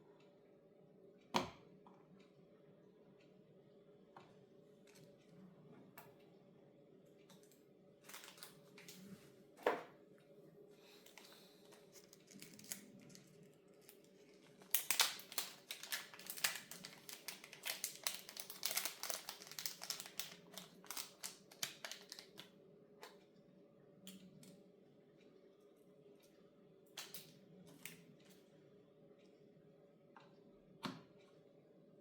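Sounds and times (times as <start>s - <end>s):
packaging crinkling: 8.0s - 9.0s, 11.1s - 22.5s.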